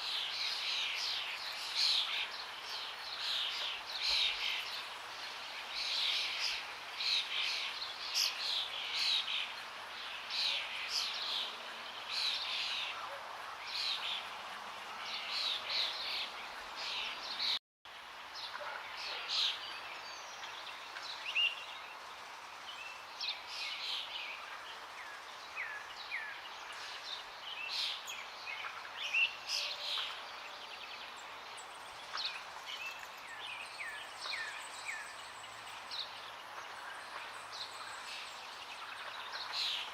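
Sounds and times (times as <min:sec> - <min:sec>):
songbirds chirping and singing: 0:18.4 - 0:39.9.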